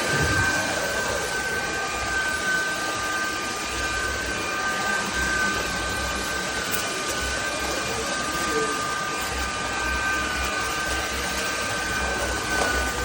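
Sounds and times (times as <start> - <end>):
rush of air: 0.0 - 1.6
vacuum cleaner motor whine: 0.0 - 13.0.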